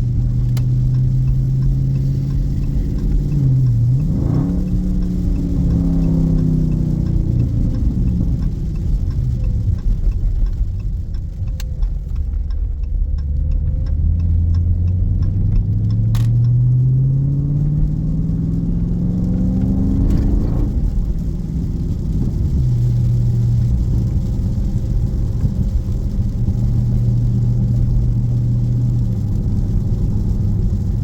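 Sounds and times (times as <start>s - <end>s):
car engine revving: 0.0s - 31.0s
faint regular clicks: 0.0s - 31.0s.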